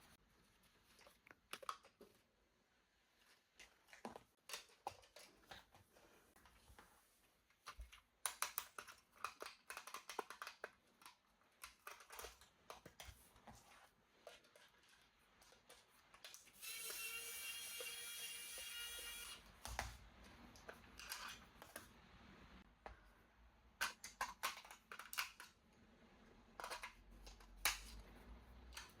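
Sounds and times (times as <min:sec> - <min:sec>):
plastic toy parts clicking: 0:07.8 - 0:13.1, 0:20.6 - 0:21.9, 0:23.8 - 0:25.6, 0:26.6 - 0:28.0.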